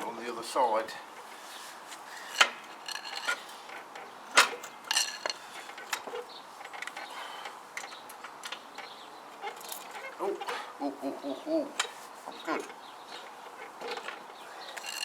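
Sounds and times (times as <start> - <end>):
ringing metallic rattle: 13.8 - 15.0.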